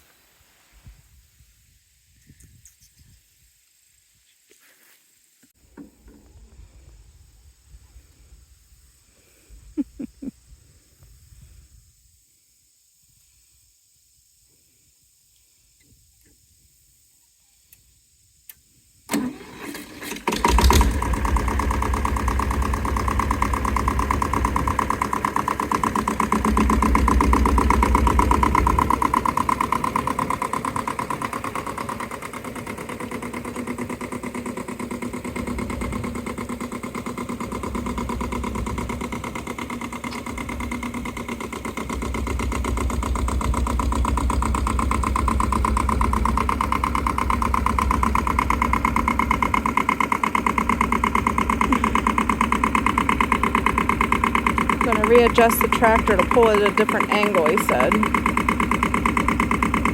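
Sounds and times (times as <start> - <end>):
tractor engine cranking and running: 19.1 - 59.9.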